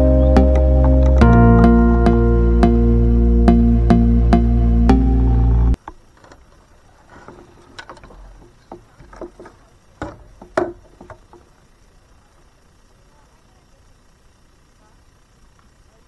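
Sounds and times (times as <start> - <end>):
faint steady hiss: 0.0 - 16.0
gear knocking and clattering: 7.1 - 11.6.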